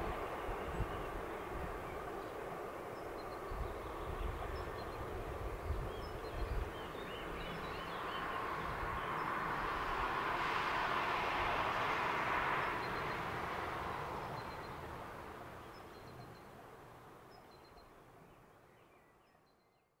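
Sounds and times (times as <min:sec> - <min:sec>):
passing train: 0:00.0 - 0:18.2
birds chirping: 0:00.2 - 0:09.4.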